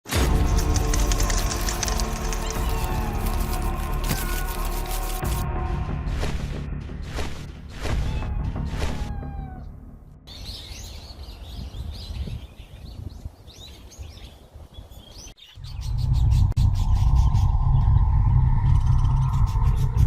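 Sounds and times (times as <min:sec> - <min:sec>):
birds chirping: 0:08.0 - 0:20.0
loud low rumble: 0:15.6 - 0:20.0.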